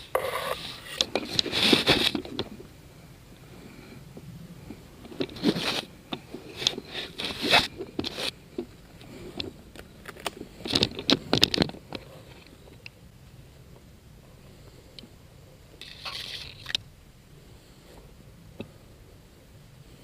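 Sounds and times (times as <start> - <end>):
crunching and scraping: 0.0 - 2.8, 3.4 - 13.0, 14.5 - 16.9.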